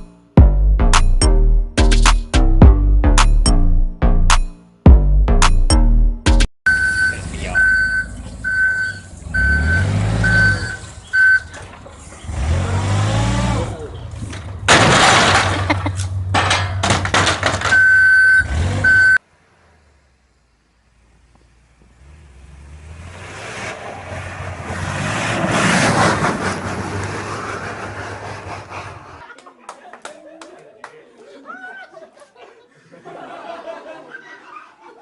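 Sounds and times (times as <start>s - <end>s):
truck reversing alarm beeping: 6.7s - 11.6s, 17.6s - 19.2s
truck engine revving: 6.7s - 16.3s, 17.8s - 29.2s.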